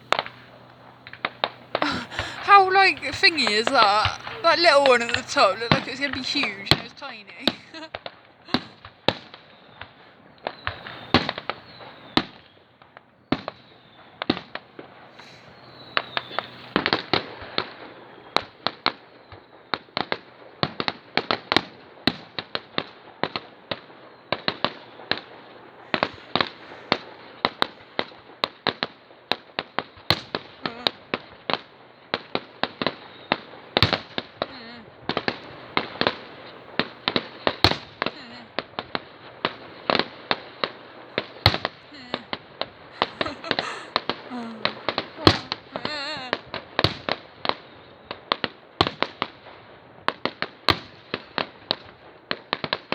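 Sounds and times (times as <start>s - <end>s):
fireworks crackling: 0.0s - 7.9s, 30.7s - 47.6s
fireworks bangs and pops: 1.8s - 7.9s, 25.9s - 52.9s.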